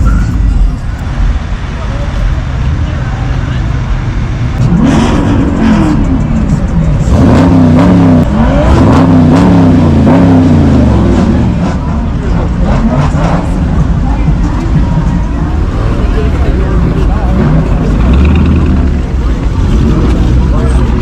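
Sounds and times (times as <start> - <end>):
car engine revving: 0.4 - 21.0.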